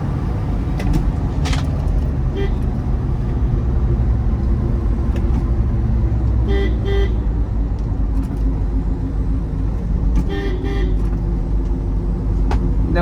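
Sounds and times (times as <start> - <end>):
car engine and road rumble: 0.0 - 13.0
car horn toots: 2.3 - 2.8, 6.4 - 7.3, 10.2 - 11.1.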